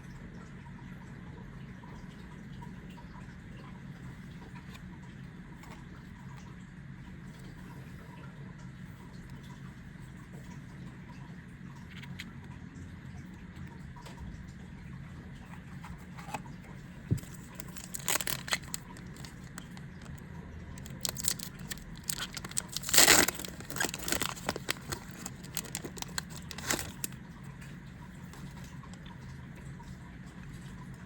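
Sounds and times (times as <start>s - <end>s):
foil pack crinkling: 17.1s - 20.2s, 20.8s - 27.2s
foil pack ripping: 17.1s - 20.2s, 20.8s - 27.2s.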